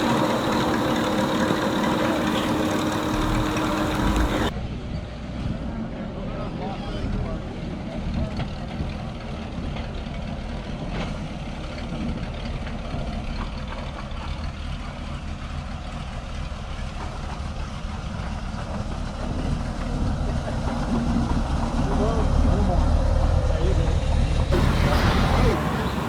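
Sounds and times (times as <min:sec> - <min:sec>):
car engine idling: 0:00.0 - 0:04.5, 0:24.5 - 0:26.0.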